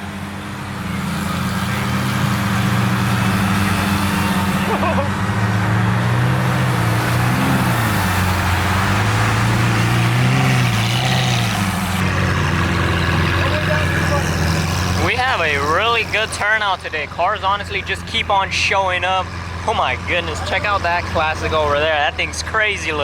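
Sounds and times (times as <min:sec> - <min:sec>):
car engine low drone: 0:00.0 - 0:23.0.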